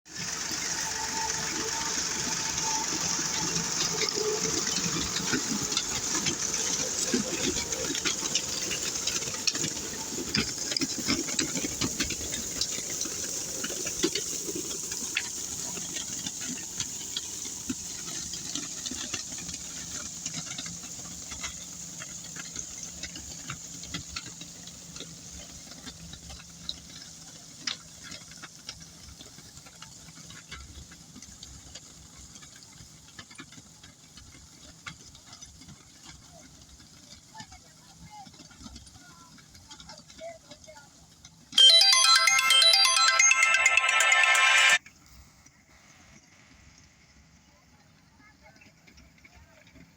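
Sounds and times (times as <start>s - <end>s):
hissing spray on road: 0.1s - 25.8s.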